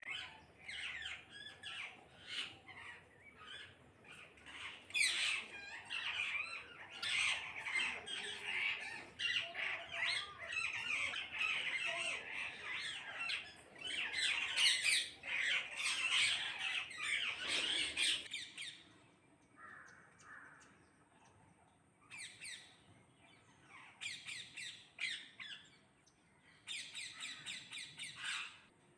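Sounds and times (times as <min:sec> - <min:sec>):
parrots squawking: 0:00.1 - 0:18.4.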